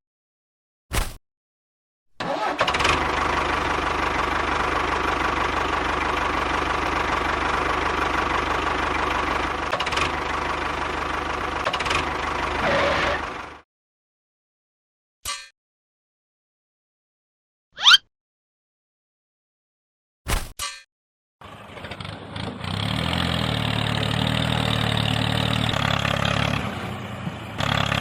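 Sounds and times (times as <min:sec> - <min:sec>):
engine running: 0:02.2 - 0:13.6, 0:21.4 - 0:28.0.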